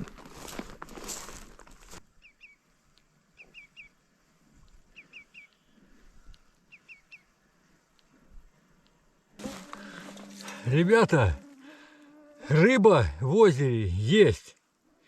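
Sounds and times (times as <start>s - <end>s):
rustle of footsteps: 0.0s - 2.1s, 2.7s - 11.6s
small bird calling: 2.2s - 2.6s, 3.3s - 4.0s, 4.9s - 7.6s.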